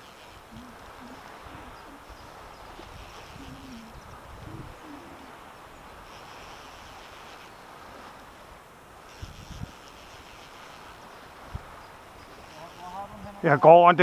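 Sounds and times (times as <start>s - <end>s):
wind and water hiss: 0.0s - 14.0s
low-pitched bird calls: 0.5s - 7.6s.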